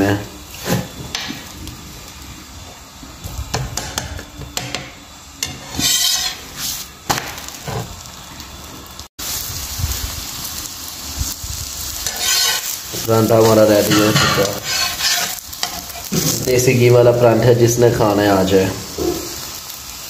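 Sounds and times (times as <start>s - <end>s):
flatbread sizzling in a pan: 0.0s - 20.0s
metal spatula scraping a pan: 5.4s - 6.8s, 12.0s - 16.4s.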